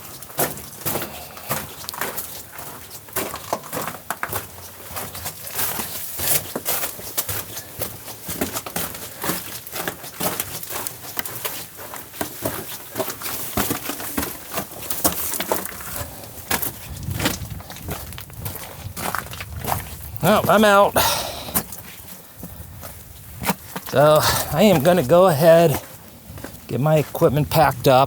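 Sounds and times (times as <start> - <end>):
footsteps crunching on gravel: 0.1 - 28.0.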